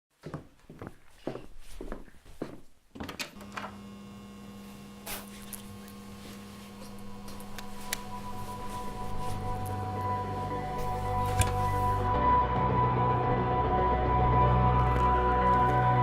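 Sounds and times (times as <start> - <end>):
steady tonal hum: 3.4 - 16.0.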